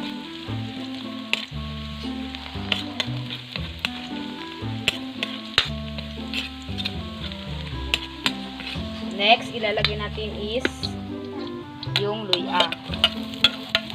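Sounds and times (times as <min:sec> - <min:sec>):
garlic sizzling in hot oil: 0:00.0 - 0:13.9
spatula clicking against pan: 0:11.8 - 0:13.9.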